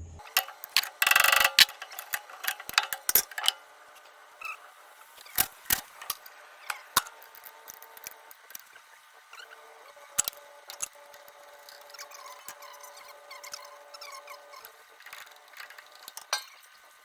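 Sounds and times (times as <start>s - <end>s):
wrenches clicking on metal: 0.3s - 3.6s, 10.2s - 16.6s.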